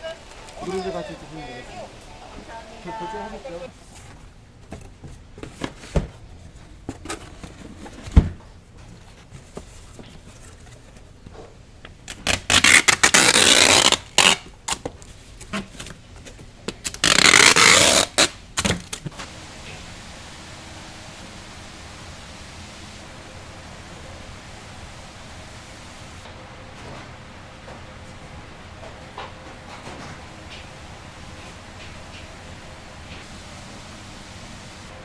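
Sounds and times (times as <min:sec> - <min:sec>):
close rustling and scraping: 0:03.6 - 0:11.6.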